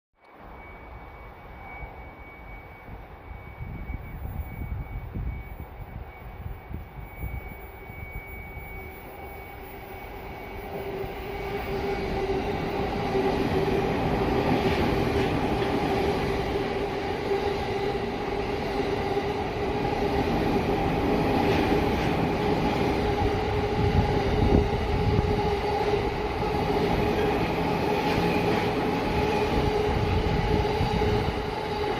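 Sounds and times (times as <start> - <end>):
train whine: 0.2 - 31.9
train wheels rumbling on rails: 0.3 - 31.9.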